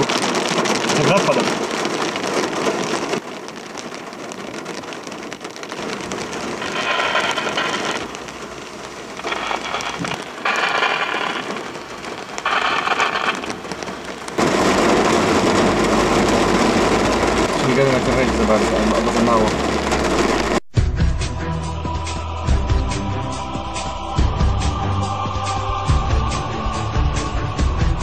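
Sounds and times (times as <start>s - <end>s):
heavy rain drumming on car roof: 0.0s - 20.7s
car engine starting: 14.4s - 23.8s.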